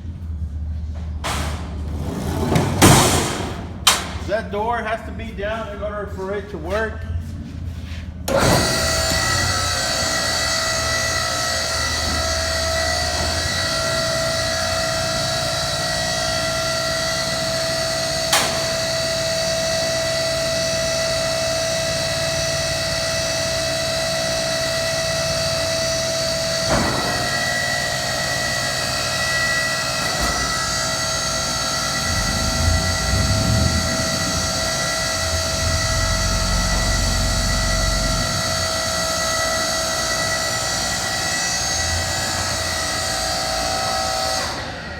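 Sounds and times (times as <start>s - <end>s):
hydraulic pump motor running: 8.2s - 44.9s
steady whine: 30.1s - 41.3s
low uneven rumble: 32.0s - 39.4s.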